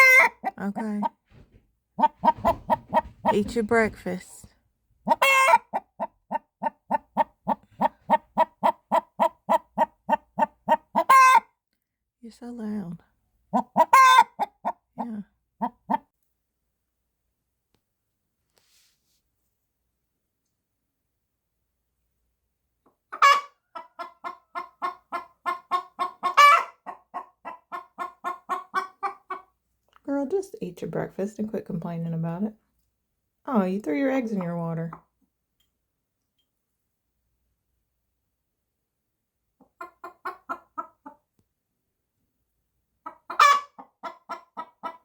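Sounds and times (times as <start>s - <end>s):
hen squawking: 0.0s - 1.1s, 5.1s - 5.8s
hen clucking: 0.0s - 3.9s, 5.0s - 11.5s, 13.5s - 16.0s, 23.1s - 29.5s, 39.6s - 41.2s, 43.0s - 45.0s.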